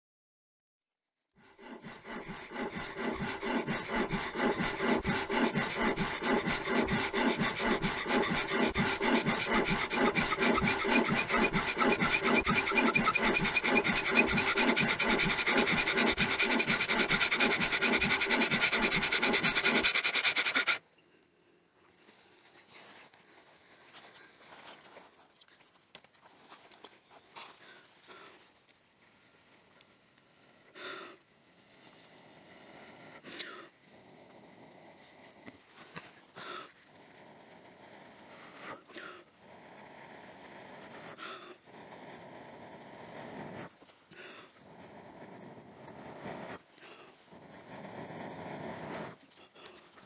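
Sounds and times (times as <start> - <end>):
wood rubbing against wood squeaking: 1.5 - 20.8.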